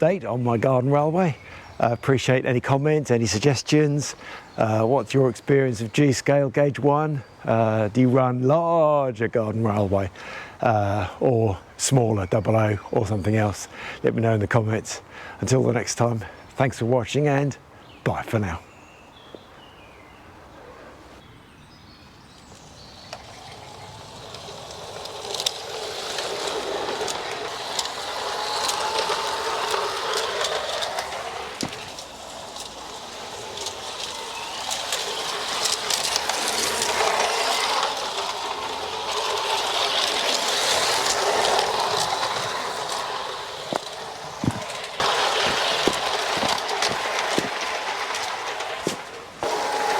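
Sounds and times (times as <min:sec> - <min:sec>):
model train wheels on rail: 0:00.0 - 0:17.6, 0:21.8 - 0:49.9
track clicks: 0:22.4 - 0:49.9.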